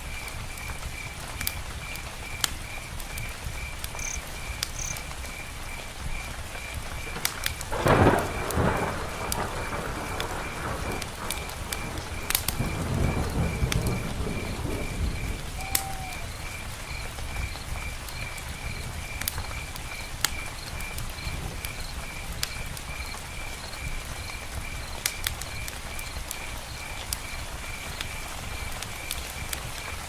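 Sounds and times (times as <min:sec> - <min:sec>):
low rumble of thunder: 0:00.0 - 0:30.0
steady rain falling: 0:00.0 - 0:30.0
faint high pulsing chirp: 0:15.6 - 0:16.4.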